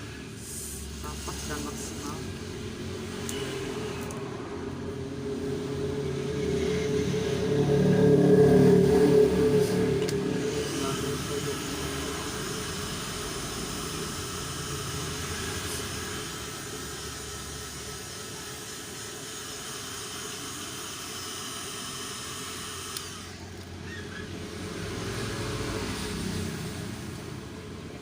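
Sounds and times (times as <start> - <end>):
heat gun blowing hot air: 6.3 - 26.7.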